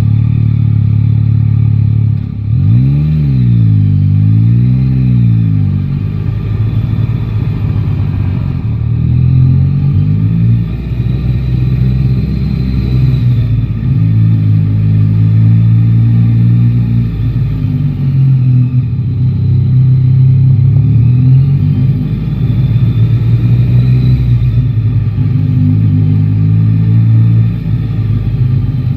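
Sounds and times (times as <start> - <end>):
motorcycle engine accelerating: 0.0 - 28.9.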